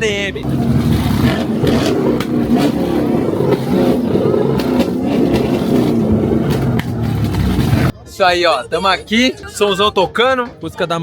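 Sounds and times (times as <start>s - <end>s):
car engines running: 0.4s - 7.9s.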